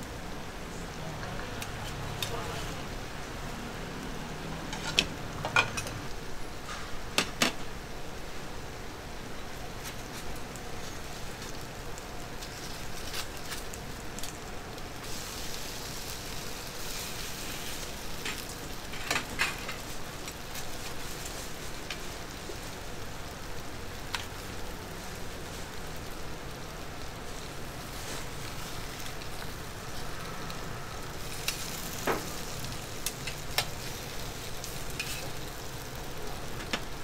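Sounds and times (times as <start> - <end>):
dumplings sizzling on a griddle: 0.0 - 37.0
metal tongs clinking on a pan: 34.6 - 35.4.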